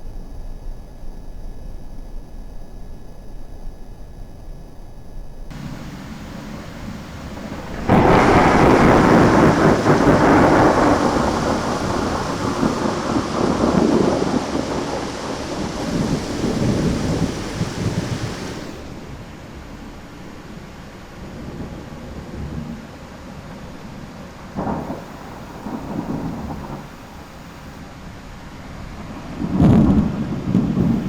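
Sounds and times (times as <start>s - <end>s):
thunder crack and rumble: 0.0s - 19.0s, 24.5s - 27.8s, 29.3s - 31.0s
rain: 5.1s - 31.0s.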